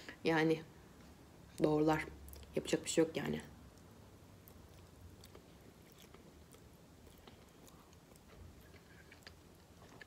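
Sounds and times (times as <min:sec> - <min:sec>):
chewing with wet mouth clicks: 0:03.7 - 0:10.0.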